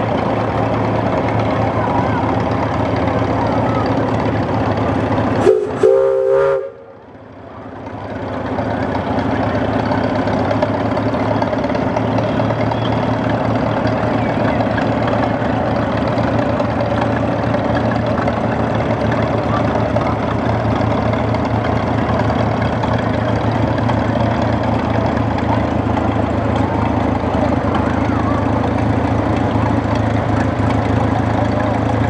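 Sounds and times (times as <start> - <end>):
steam engine running: 0.0 - 32.0
steam whistle blowing: 5.4 - 7.0.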